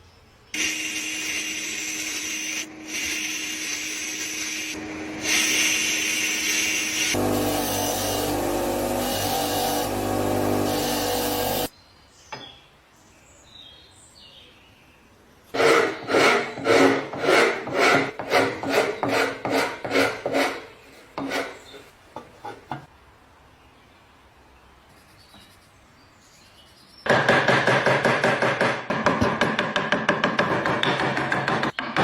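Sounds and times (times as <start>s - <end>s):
power tool running: 0.6s - 11.7s
rasp strokes across wood: 15.6s - 21.8s.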